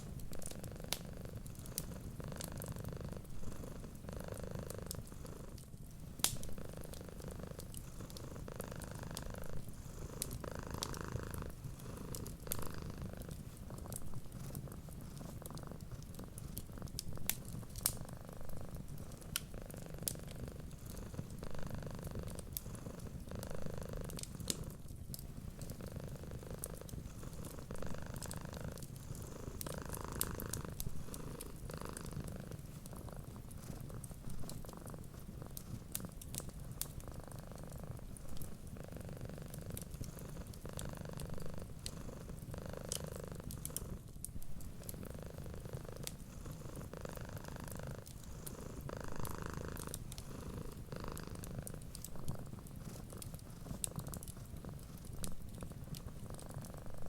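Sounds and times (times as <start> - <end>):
wood fire crackling: 0.0 - 4.1, 4.8 - 57.0
cat purring: 0.0 - 57.0.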